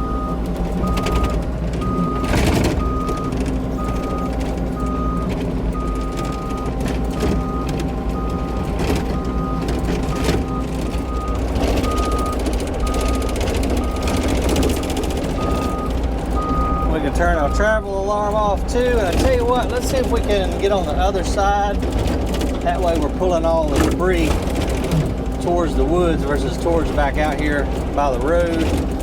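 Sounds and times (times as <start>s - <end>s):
diesel engine running: 0.0s - 29.0s
travel alarm beeping: 0.0s - 29.0s.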